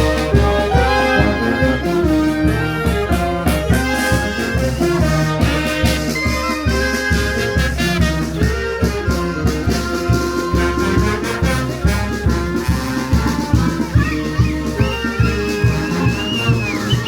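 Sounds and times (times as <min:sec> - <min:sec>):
bass drum beat: 0:00.0 - 0:17.0
brass band melody: 0:00.0 - 0:17.0.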